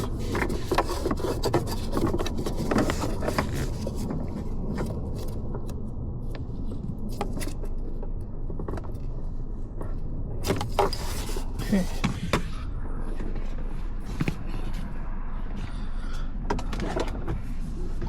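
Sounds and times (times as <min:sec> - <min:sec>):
plastic trim rubbing and scraping: 0:00.0 - 0:05.4, 0:10.4 - 0:12.2
steady low rumble: 0:00.0 - 0:18.0.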